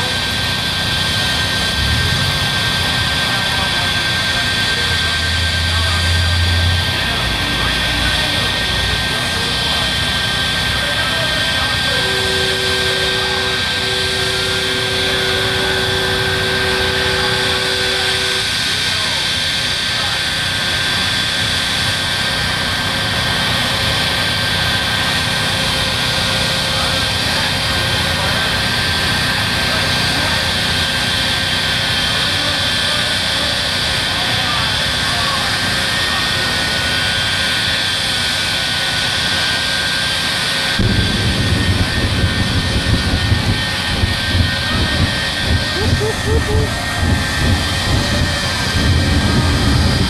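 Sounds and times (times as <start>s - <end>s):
jet engines roaring with whine: 0.0s - 50.0s
rough deep rumble: 0.8s - 7.4s, 40.8s - 50.0s.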